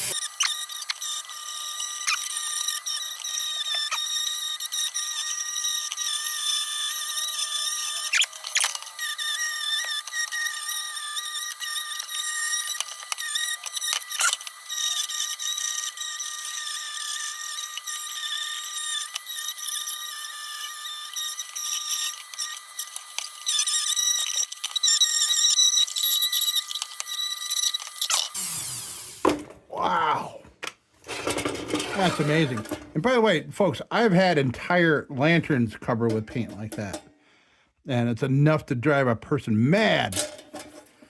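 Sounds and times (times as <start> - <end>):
rotary tool wire wheel grinding: 0.0 - 29.3, 31.0 - 33.1, 40.0 - 41.0.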